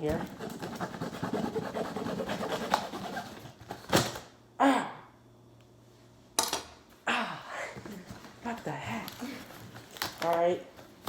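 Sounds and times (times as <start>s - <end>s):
packaging rustling and crinkling: 9.0s - 11.0s.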